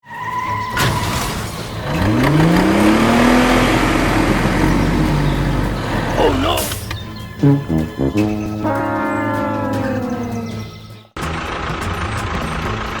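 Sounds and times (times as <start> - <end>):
engine revving: 1.7 - 6.4, 7.4 - 12.6.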